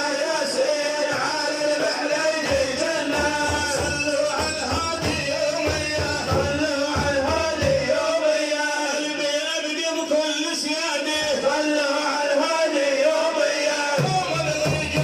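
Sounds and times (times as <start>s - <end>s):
man singing: 0.0s - 15.0s
low drum beats: 2.4s - 7.9s, 14.0s - 15.0s.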